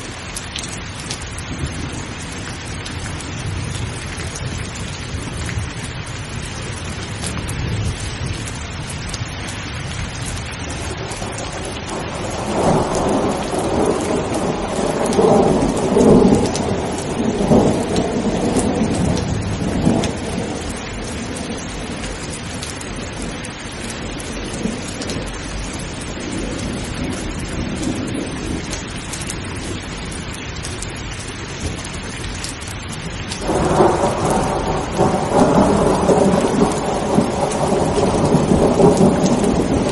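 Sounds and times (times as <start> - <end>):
steady rain falling: 0.0 - 39.9
rolling thunder: 9.9 - 30.1, 33.0 - 39.9.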